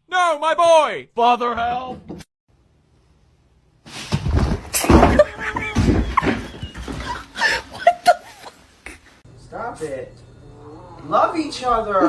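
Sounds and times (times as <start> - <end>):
pets scuffling with thumps: 3.9 - 7.6.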